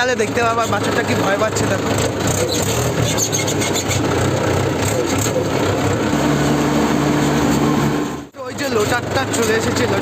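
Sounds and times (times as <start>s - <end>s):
rattling noise: 0.0s - 6.2s
tractor diesel engine: 0.0s - 10.0s.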